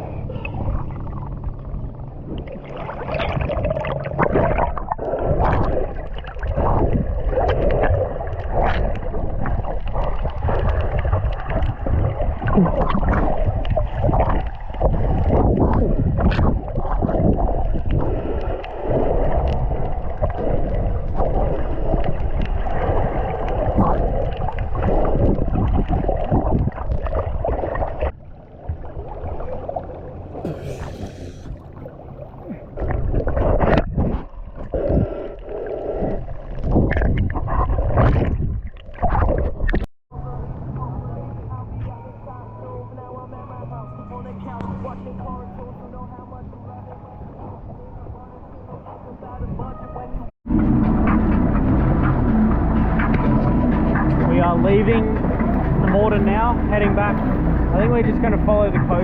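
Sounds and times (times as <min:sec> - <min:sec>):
hull slapping water: 0:00.0 - 0:40.8, 0:43.0 - 0:59.0
jet ski engine: 0:50.5 - 0:58.8.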